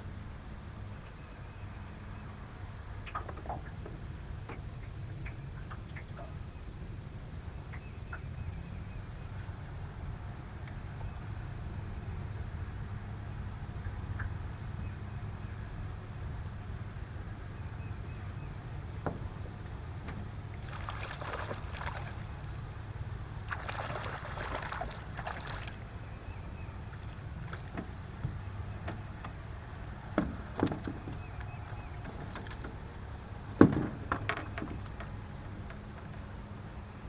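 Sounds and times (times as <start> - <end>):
boat engine low hum: 0.0 - 37.0
knocks against boat: 19.0 - 20.3, 30.1 - 31.3, 33.6 - 36.2.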